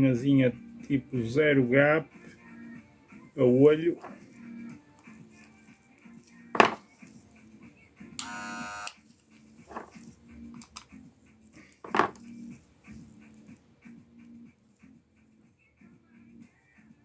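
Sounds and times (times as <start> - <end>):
hair clipper buzzing: 8.2 - 9.0
hair clipper switch clicks: 8.2 - 9.0.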